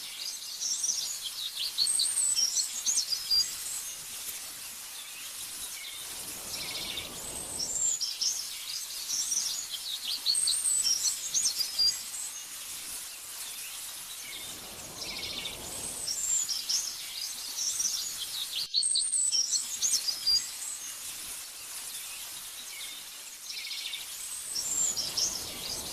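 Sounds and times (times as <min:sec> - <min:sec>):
songbirds chirping: 0:00.0 - 0:25.9
soft rushing noise: 0:06.0 - 0:08.0, 0:14.0 - 0:17.0, 0:24.5 - 0:25.9.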